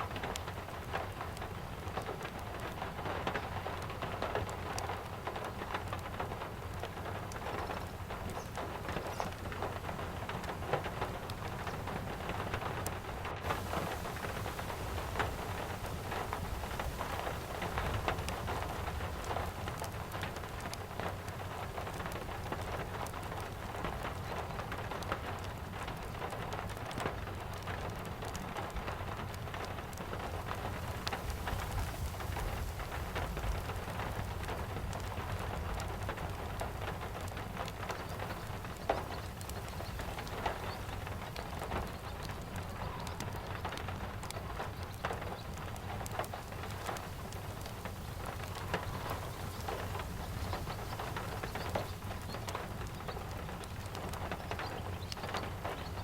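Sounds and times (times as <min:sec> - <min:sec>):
steady rain: 0:00.0 - 0:56.0
wood fire crackling: 0:00.0 - 0:56.0.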